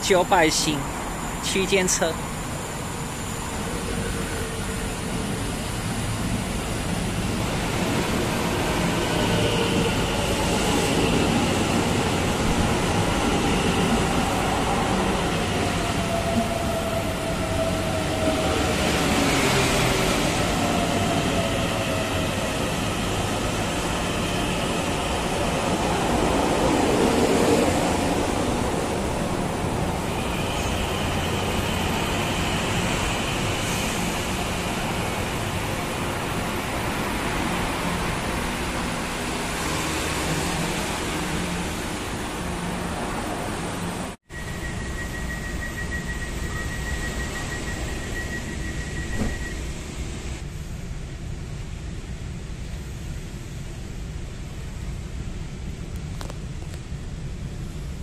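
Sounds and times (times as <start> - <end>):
electric train rolling rumble: 0.0 - 58.0
train motor whine: 44.4 - 50.4.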